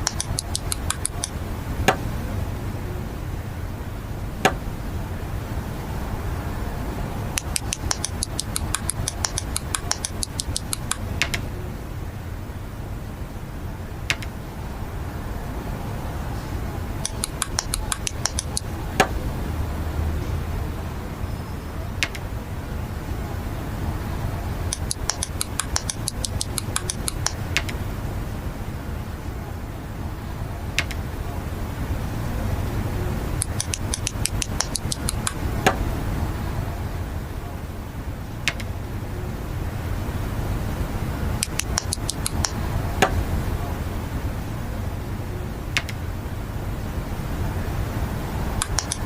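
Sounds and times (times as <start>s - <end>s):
sharp plastic clicks: 0.0s - 2.1s, 7.4s - 11.5s, 14.1s - 14.4s, 17.0s - 19.2s, 22.0s - 22.3s, 24.7s - 27.8s, 30.8s - 31.1s, 33.4s - 35.9s, 38.4s - 38.7s, 41.4s - 43.2s, 45.8s - 46.0s, 48.6s - 49.0s
steady low hum: 0.0s - 49.0s.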